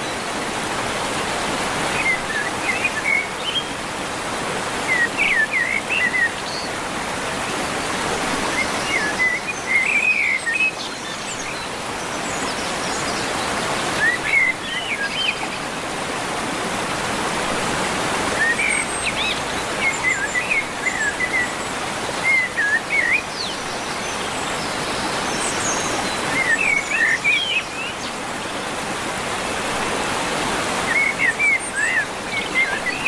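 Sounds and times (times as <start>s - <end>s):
waterfall rushing: 0.0s - 33.0s
birds chirping: 17.4s - 33.0s.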